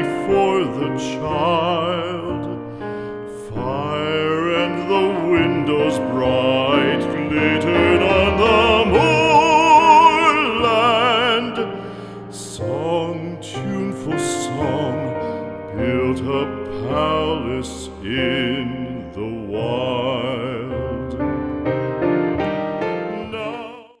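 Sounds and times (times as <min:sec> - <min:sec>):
person singing with vibrato: 0:00.0 - 0:21.4, 0:22.8 - 0:24.0
piano accompaniment: 0:00.0 - 0:24.0.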